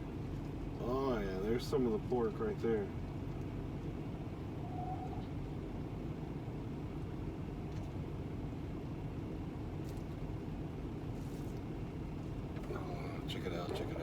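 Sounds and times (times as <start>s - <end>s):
diesel truck engine idling: 11.7s - 14.0s.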